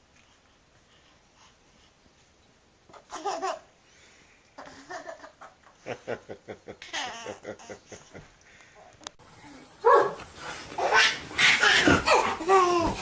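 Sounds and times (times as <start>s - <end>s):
baby laughing: 2.9s - 3.7s, 6.8s - 8.1s, 10.8s - 13.0s.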